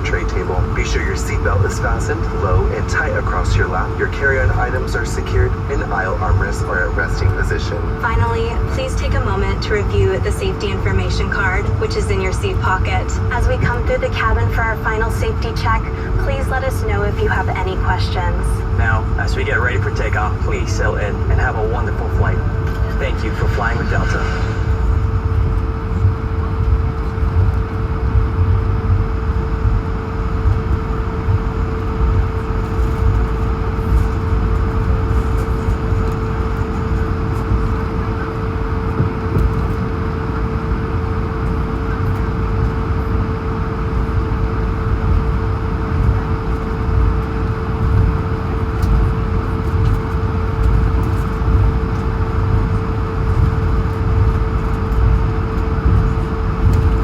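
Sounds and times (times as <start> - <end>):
constant mid-pitched tone: 0.0 - 57.0
jet engines humming: 0.0 - 57.0
low rumble: 0.0 - 57.0.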